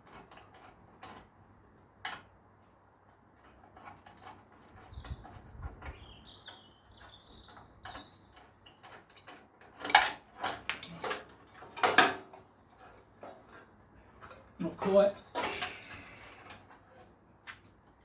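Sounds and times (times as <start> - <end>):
hand tools squeaking: 12.8 - 17.1.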